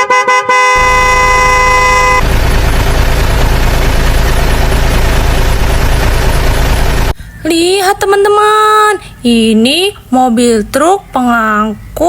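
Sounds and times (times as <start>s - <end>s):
heavy truck engine rumbling: 0.8s - 8.4s.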